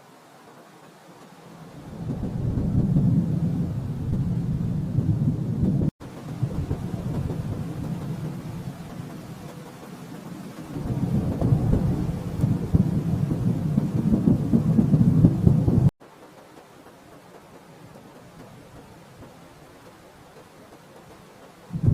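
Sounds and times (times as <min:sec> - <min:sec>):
thunder rumbling: 0:01.5 - 0:15.9, 0:21.0 - 0:21.9.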